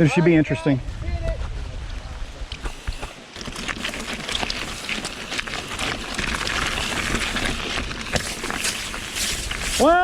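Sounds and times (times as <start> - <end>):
tyres hissing on wet ground: 2.6 - 10.0
bike clattering over rocks: 2.7 - 10.0.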